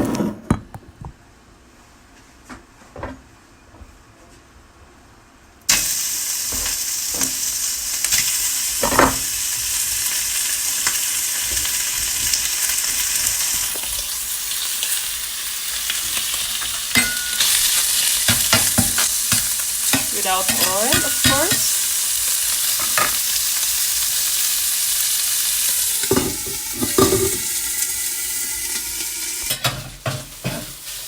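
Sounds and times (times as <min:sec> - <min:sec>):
food sizzling in a pan: 0:05.7 - 0:31.0.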